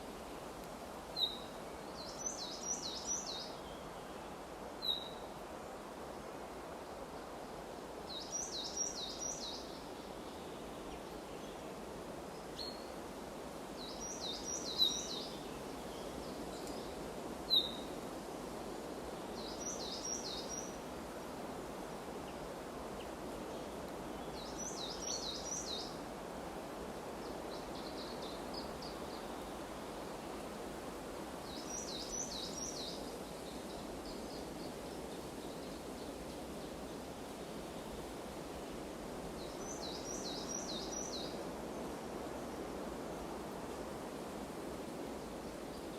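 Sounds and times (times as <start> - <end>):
forest ambience hiss: 0.0 - 45.9
songbird singing: 1.1 - 5.4, 8.1 - 13.0, 13.8 - 18.0, 19.3 - 20.9, 22.2 - 26.1, 26.9 - 30.6, 31.4 - 38.0, 39.3 - 43.7.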